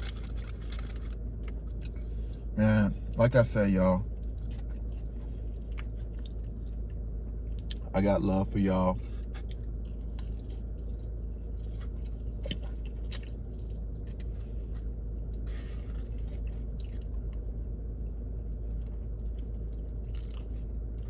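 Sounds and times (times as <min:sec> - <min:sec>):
steady low hum: 0:00.0 - 0:21.0
person chewing food: 0:04.2 - 0:07.9, 0:09.0 - 0:21.0.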